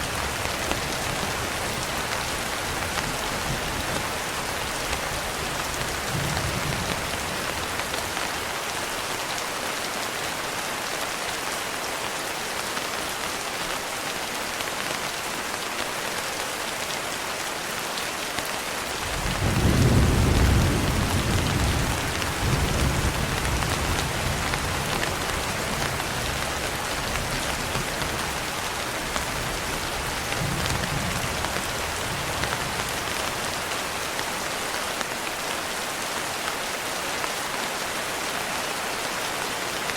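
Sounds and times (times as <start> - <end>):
steady rain: 0.0 - 39.9
thunder rumbling: 19.1 - 26.4.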